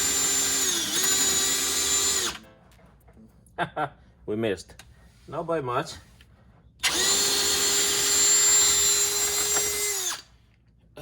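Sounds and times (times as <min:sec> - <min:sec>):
electric drill spinning: 0:00.0 - 0:02.4, 0:06.8 - 0:10.4.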